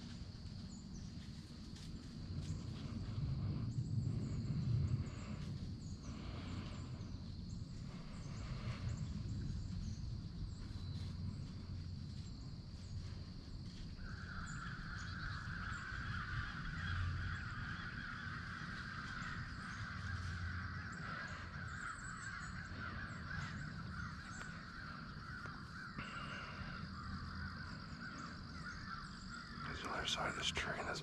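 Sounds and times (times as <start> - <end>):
birds calling: 13.9 - 31.0.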